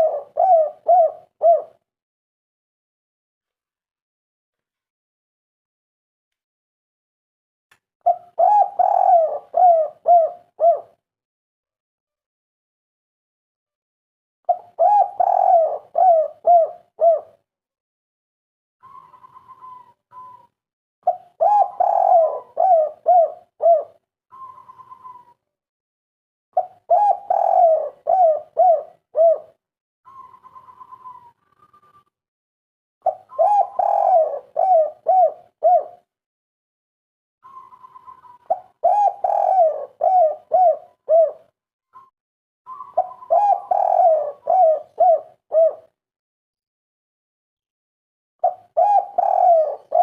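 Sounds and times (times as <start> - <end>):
dove cooing: 0.0 - 1.8, 8.1 - 11.0, 14.5 - 17.4, 18.8 - 20.5, 21.1 - 25.4, 26.6 - 31.9, 33.0 - 36.1, 37.4 - 41.5, 42.7 - 45.9, 48.4 - 50.0.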